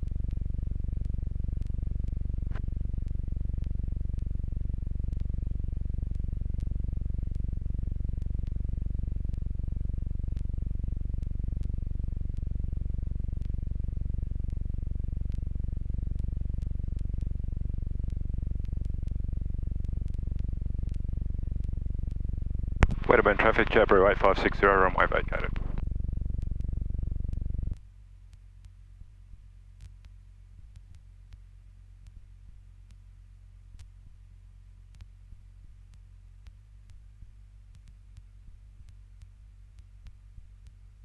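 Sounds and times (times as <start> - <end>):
light aircraft engine humming: 7.6 - 27.8.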